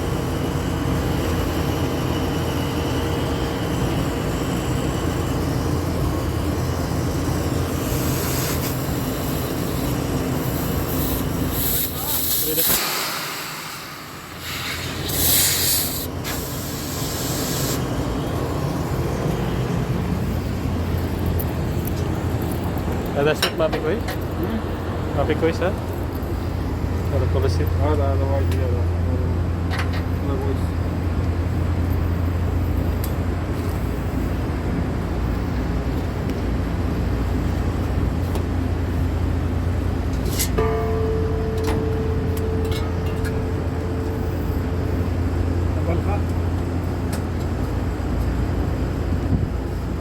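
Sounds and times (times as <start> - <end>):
machinery droning: 0.0 - 50.0
gas hissing: 7.8 - 18.0
machine humming: 38.8 - 48.2
high-pitched tone: 40.6 - 45.9.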